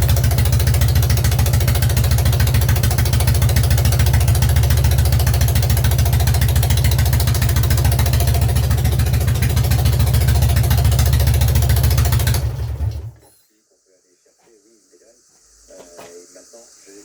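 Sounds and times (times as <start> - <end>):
motorcycle engine idling: 0.0 - 13.2.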